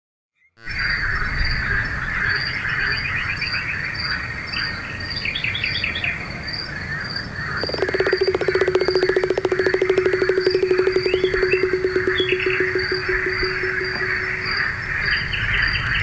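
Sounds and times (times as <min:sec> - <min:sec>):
frogs and birds calling: 0:07.4 - 0:15.6
songbird run of notes: 0:07.6 - 0:15.1
pulsing low croak: 0:07.6 - 0:15.3.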